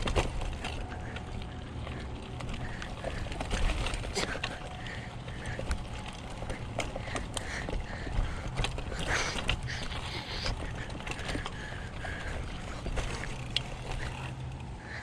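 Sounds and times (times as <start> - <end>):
bicycle chain clicking and rattling: 0.0 - 15.0
low rumble of riding: 0.0 - 15.0.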